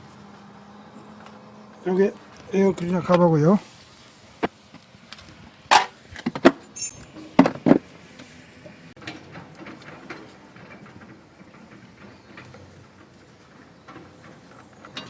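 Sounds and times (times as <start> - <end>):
engine parts knocking and clattering: 5.7 - 7.9, 9.0 - 15.0
brief metallic ring: 6.8 - 7.4.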